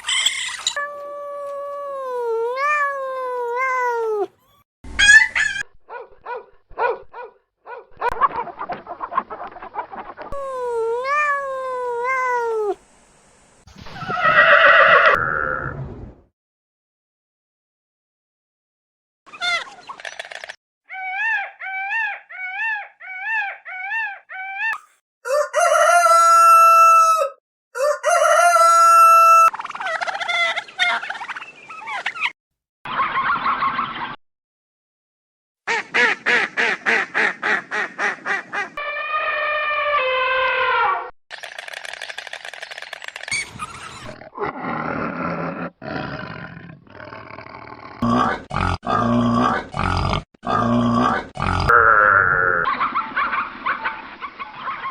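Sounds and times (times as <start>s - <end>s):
chicken calling: 0.0s - 5.8s, 13.9s - 15.3s, 20.9s - 32.3s
long loud rooster crows: 25.2s - 29.5s
chattering animal calls: 41.3s - 44.3s.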